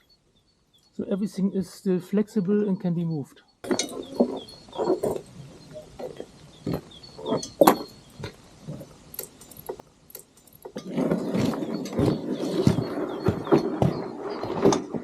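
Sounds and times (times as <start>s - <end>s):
knocks and clinks: 3.6s - 14.9s.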